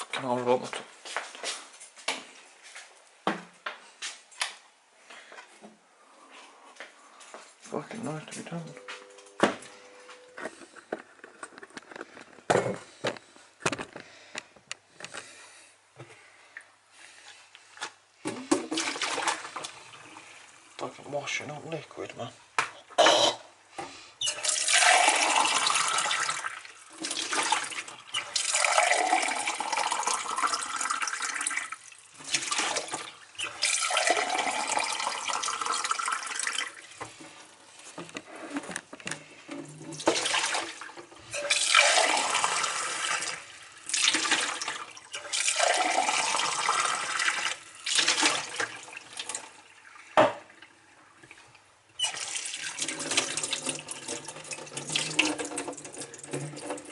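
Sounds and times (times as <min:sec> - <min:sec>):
tap water filling vessel: 0:23.8 - 0:38.3, 0:39.1 - 0:56.9.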